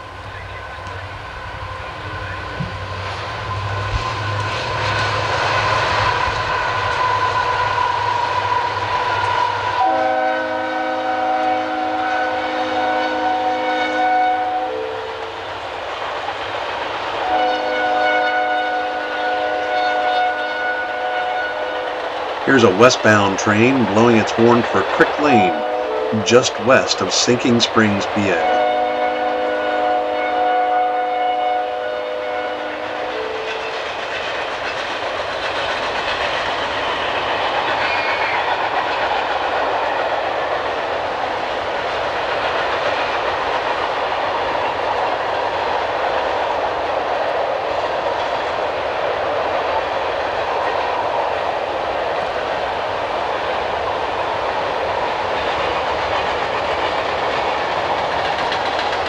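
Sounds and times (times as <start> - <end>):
locomotive air horn chord: 9.8 - 15.4, 17.2 - 23.0, 25.2 - 33.8
freight wheels clickety-clack: 32.8 - 59.0.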